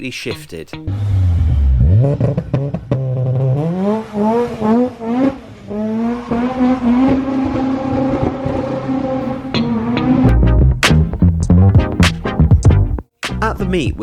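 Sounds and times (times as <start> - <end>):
car engine accelerating hard: 0.9 - 10.5.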